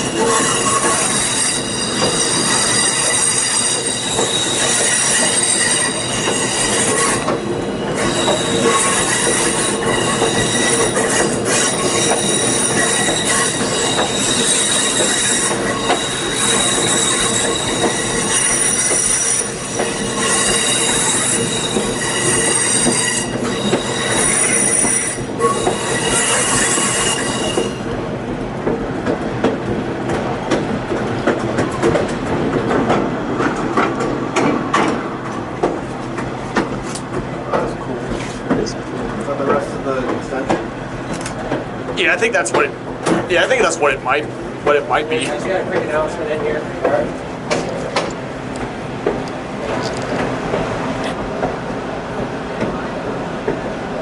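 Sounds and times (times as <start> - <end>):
train wheels squealing: 0.0 - 27.9
train wheels rumbling and clicking: 0.0 - 54.0.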